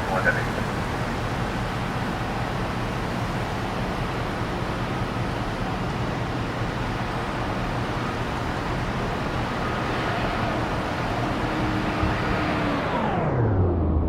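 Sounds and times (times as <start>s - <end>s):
jet engines rumbling: 0.0s - 14.0s
faint whining tones: 6.6s - 14.0s.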